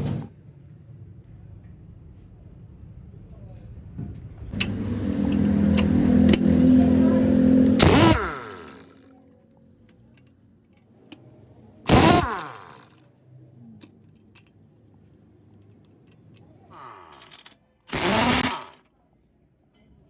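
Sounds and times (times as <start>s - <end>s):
light metallic clinks: 4.6s - 8.8s
engine running: 4.6s - 9.2s, 11.0s - 13.0s, 13.8s - 18.8s.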